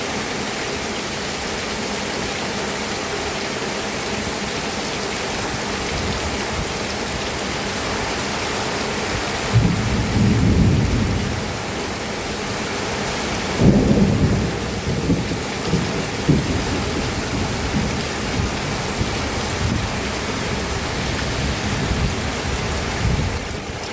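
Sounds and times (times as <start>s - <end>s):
heavy rain: 0.0s - 23.9s
low rumbles of thunder: 9.4s - 11.9s, 13.5s - 23.7s.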